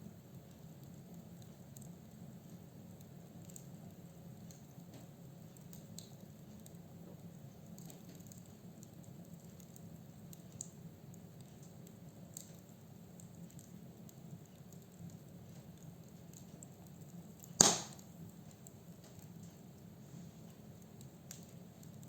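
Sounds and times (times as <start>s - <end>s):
firewood crackling: 0.0s - 22.0s
faint ticks: 0.4s - 17.6s
sharp loud pop: 17.6s - 18.0s.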